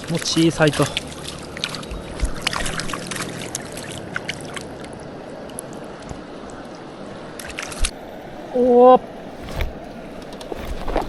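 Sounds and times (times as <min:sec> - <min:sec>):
small splashes and clicks: 0:00.0 - 0:06.8, 0:07.4 - 0:08.0
shallow river water rushing: 0:00.0 - 0:11.0.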